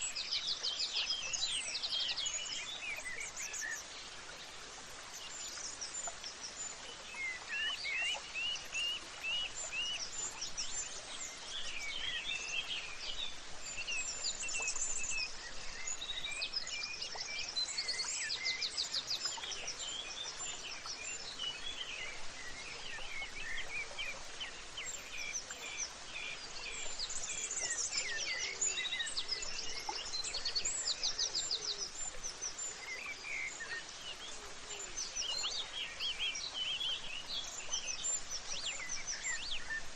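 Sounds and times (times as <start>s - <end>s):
background hiss: 0.0s - 39.9s
small birds chirping: 0.0s - 39.9s.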